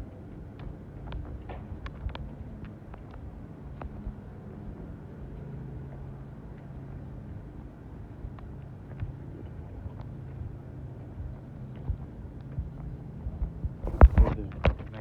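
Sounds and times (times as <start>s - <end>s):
low mechanical hum: 13.8s - 14.5s.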